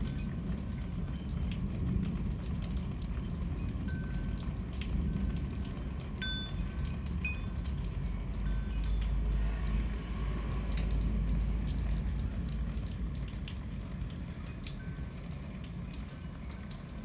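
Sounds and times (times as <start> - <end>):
wind chime tinkling: 0.0 - 1.3, 6.2 - 7.7, 8.4 - 9.4
rain dripping and splashing: 0.0 - 17.0.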